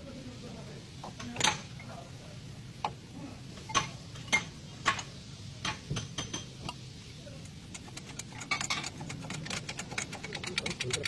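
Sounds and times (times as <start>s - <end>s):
metal tools clinking on car parts: 7.4s - 11.0s.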